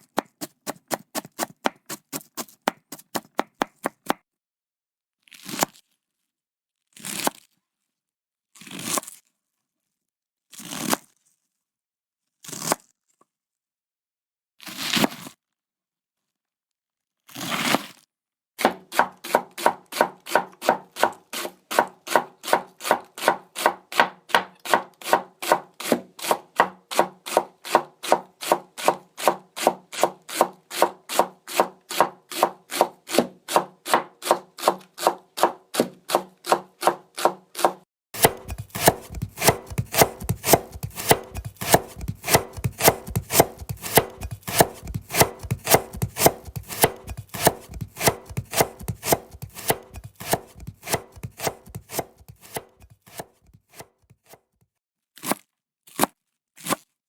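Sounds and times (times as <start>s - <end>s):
knife chopping on cutting board: 0.0s - 4.2s, 18.6s - 54.4s.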